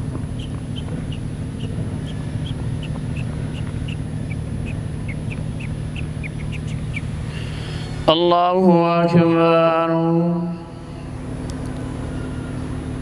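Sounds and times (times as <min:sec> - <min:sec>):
bird chirping: 0:00.0 - 0:08.1
low hum: 0:00.0 - 0:13.0.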